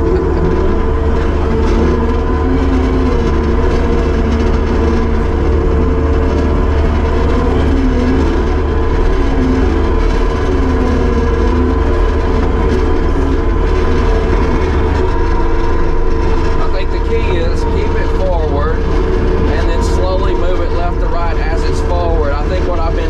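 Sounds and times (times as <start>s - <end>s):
diesel engine running: 0.0s - 23.0s
hydraulic whine: 0.0s - 23.0s.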